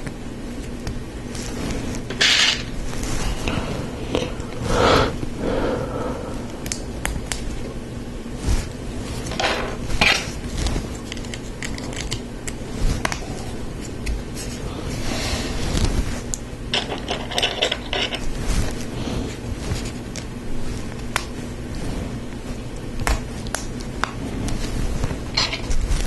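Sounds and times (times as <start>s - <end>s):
plastic pieces scraping: 16.8s - 18.8s.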